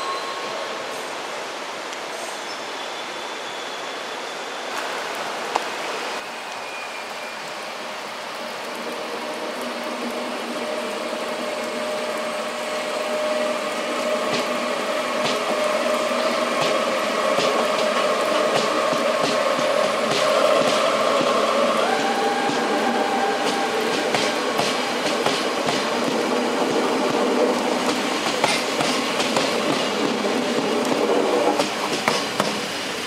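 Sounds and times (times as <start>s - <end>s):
electric train rolling past: 0.0s - 33.0s
steady rain hiss: 0.0s - 33.0s
train humming tone: 6.8s - 33.0s.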